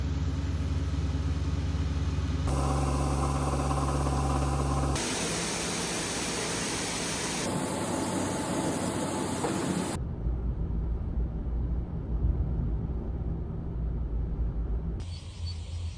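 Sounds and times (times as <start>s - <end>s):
farm machinery engines idling: 0.1s - 10.0s.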